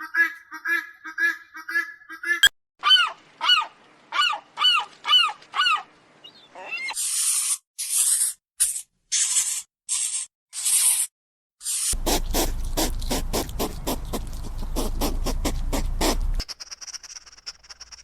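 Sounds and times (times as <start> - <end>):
harsh hissing bursts: 12.0 - 16.5.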